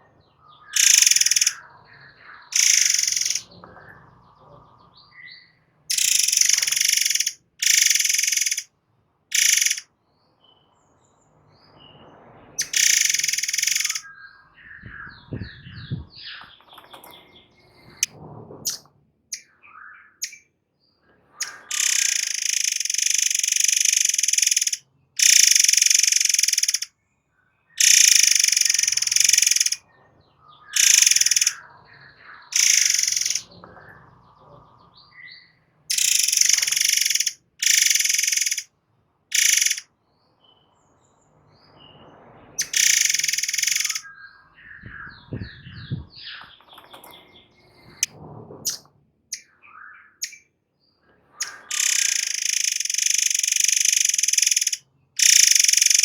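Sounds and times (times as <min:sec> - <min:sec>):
songbird singing shrill bursts: 0:00.8 - 0:01.6, 0:02.6 - 0:03.5, 0:05.9 - 0:08.7, 0:09.3 - 0:09.8, 0:12.6 - 0:14.1, 0:21.4 - 0:26.9, 0:27.8 - 0:29.8, 0:30.8 - 0:31.6, 0:32.6 - 0:33.5, 0:35.9 - 0:38.6, 0:39.3 - 0:39.8, 0:42.6 - 0:44.1, 0:51.4 - 0:56.0.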